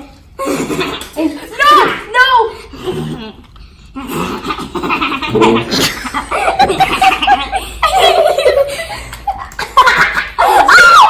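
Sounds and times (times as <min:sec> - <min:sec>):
kids laughing: 0:04.4 - 0:11.0.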